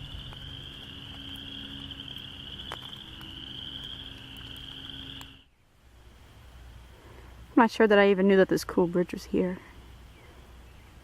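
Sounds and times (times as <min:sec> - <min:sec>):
frogs calling in chorus: 0:00.0 - 0:05.5.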